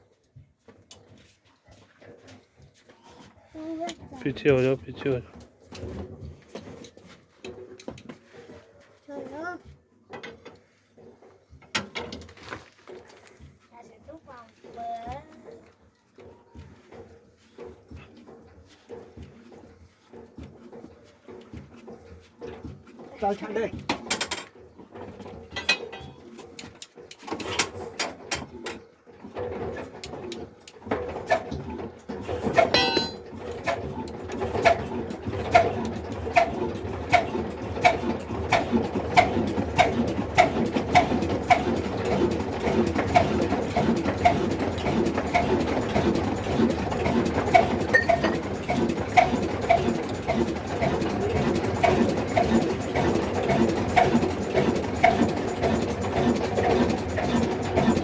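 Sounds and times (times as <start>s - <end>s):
single-cylinder diesel engine running: 31.0s - 58.0s.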